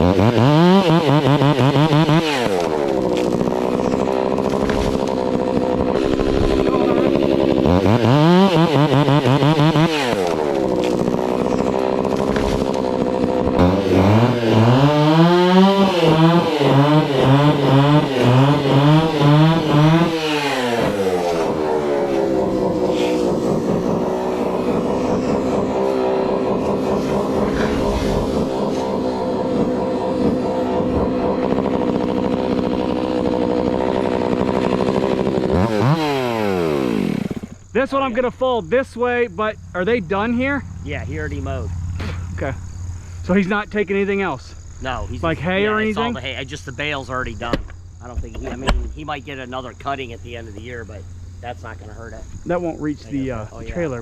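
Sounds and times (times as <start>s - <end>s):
chainsaw running at high revs: 0.0s - 37.7s.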